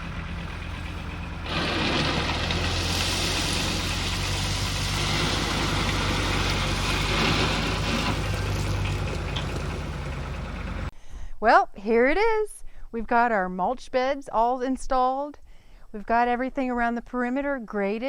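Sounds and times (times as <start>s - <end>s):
tractor diesel engine running: 0.0s - 10.9s.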